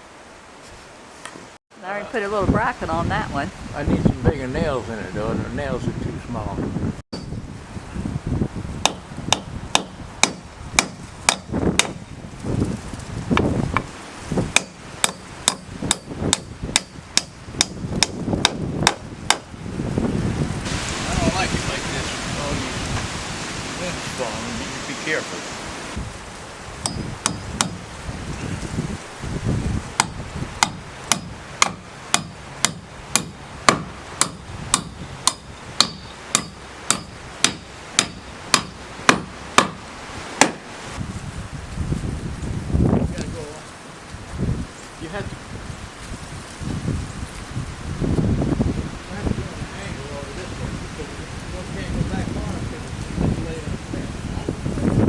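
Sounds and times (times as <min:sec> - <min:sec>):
hammer driving nails into wood: 0:08.8 - 0:12.0, 0:30.0 - 0:39.8, 0:40.4 - 0:40.6.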